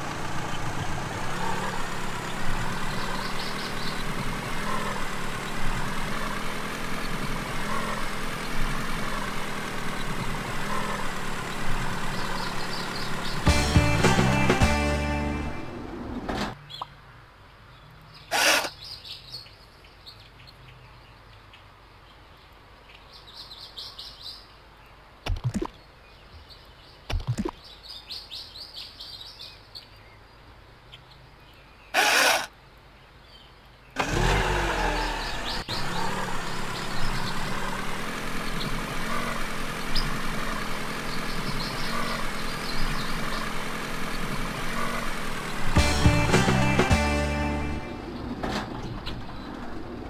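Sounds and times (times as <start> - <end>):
dense steady mechanical sound: 0.0 - 13.5
bird chirps: 1.5 - 5.7, 9.9 - 13.5, 41.0 - 45.7
sharp clicks: 25.2 - 25.8, 27.1 - 27.6.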